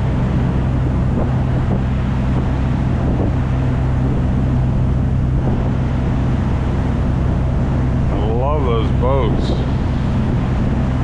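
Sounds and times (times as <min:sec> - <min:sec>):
boat engine drone: 0:00.0 - 0:11.0
water wash: 0:00.0 - 0:11.0
wind noise: 0:00.0 - 0:11.0.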